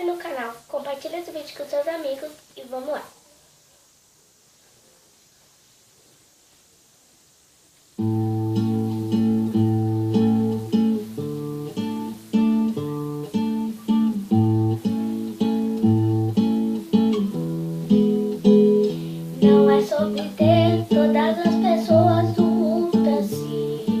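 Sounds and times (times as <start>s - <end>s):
acoustic guitar chords: 8.0s - 24.0s.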